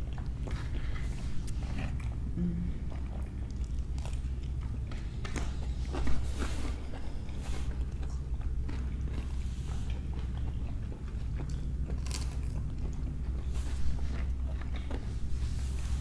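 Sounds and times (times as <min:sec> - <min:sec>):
chewing and crunching: 0:00.0 - 0:16.0
steady low hum: 0:00.0 - 0:16.0.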